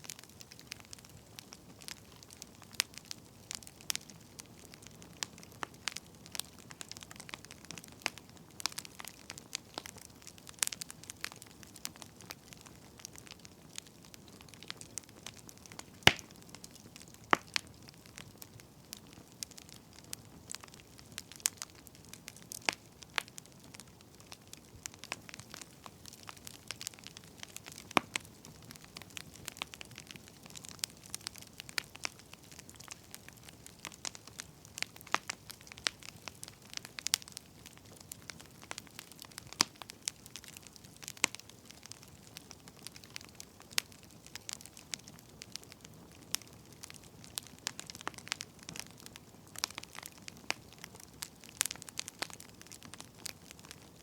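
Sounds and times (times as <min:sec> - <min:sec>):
firewood crackling and snapping: 0:00.0 - 0:54.0
soft fire hiss: 0:00.0 - 0:54.0.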